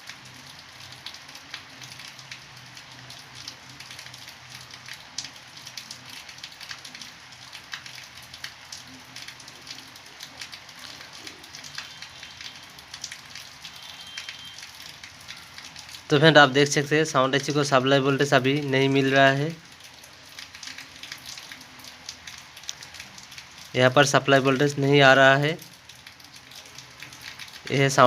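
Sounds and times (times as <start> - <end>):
faint crackling hiss with clicks: 19.4 - 23.8, 25.4 - 27.9.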